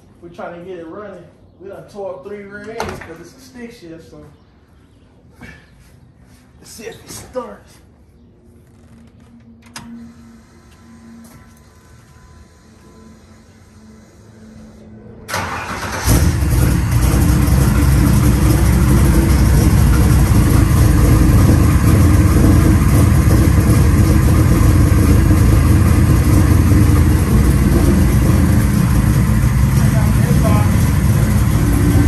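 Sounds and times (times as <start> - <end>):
car engine cranking and running: 15.3 - 32.0.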